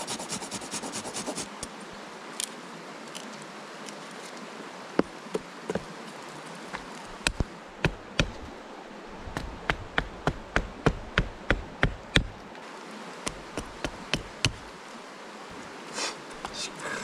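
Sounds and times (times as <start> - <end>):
insects buzzing: 0.0 - 17.0
tool knocking on wood: 7.2 - 8.4, 9.4 - 12.4, 13.3 - 14.6.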